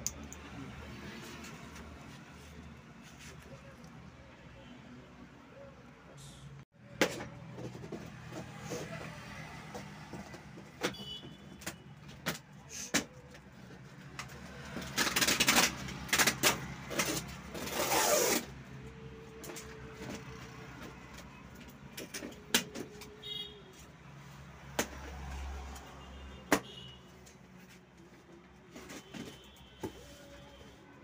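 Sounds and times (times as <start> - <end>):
packaging rustling and scraping: 13.1 - 18.6.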